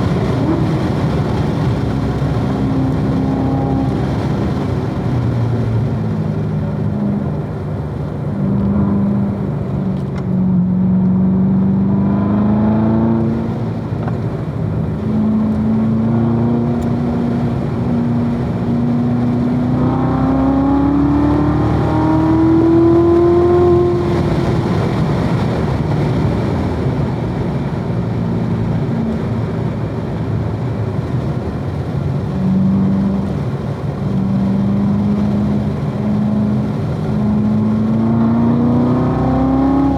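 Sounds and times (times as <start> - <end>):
car engine revving hard: 0.0 - 39.9.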